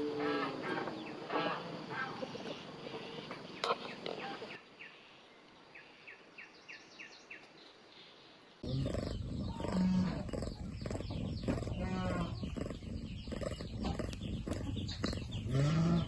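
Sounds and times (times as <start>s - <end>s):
farm animals calling: 0.0s - 4.6s, 8.6s - 16.0s.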